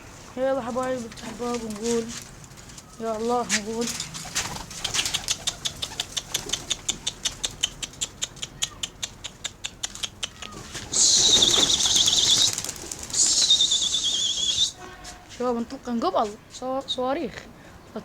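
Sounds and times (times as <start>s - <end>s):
pigeon wings clapping: 3.9s - 14.6s
shrill trilling whistle: 10.9s - 12.6s, 13.2s - 14.9s.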